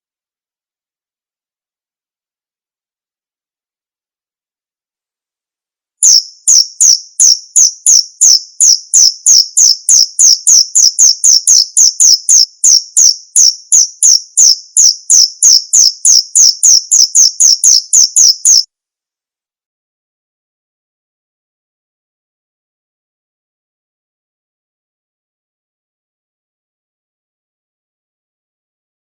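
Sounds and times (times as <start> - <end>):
cricket chirping: 6.0 - 18.7.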